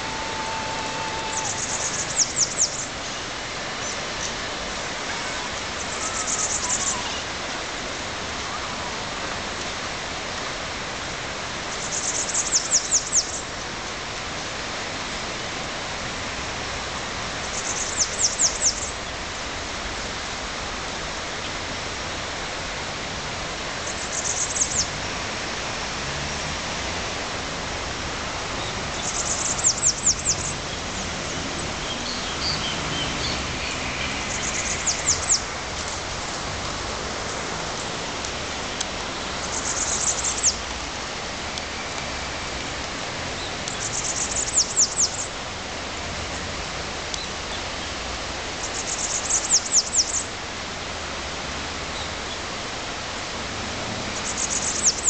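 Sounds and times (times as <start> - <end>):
high-pitched bird notes: 0.0 - 2.8
background hiss: 0.0 - 55.0.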